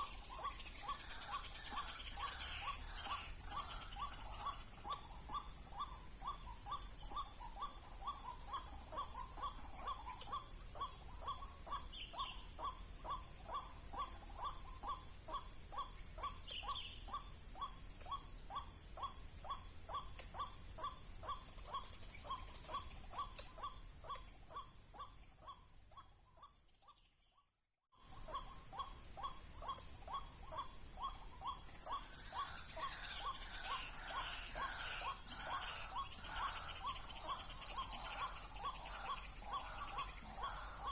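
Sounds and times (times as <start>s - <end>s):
waterhen calling: 0.0s - 15.4s, 28.2s - 40.9s
small birds chirping: 0.0s - 40.9s.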